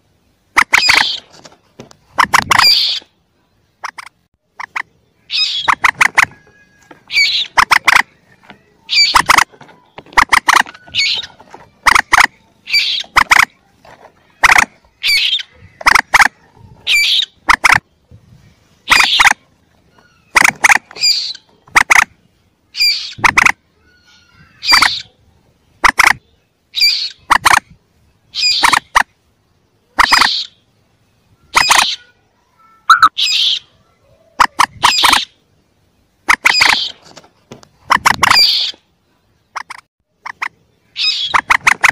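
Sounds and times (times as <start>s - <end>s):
moorhen calls: 0.6s - 1.3s, 2.1s - 3.2s, 3.8s - 18.1s, 18.8s - 22.1s, 22.7s - 25.2s, 25.8s - 27.7s, 28.3s - 29.1s, 29.8s - 30.6s, 32.8s - 35.4s, 36.2s - 37.1s, 39.5s - 41.9s.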